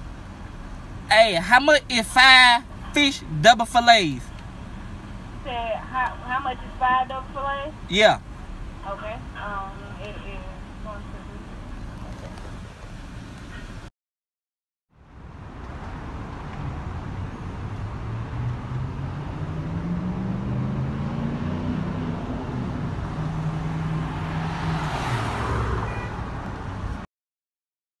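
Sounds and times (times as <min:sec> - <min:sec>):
car engine accelerating: 0:15.6 - 0:25.7.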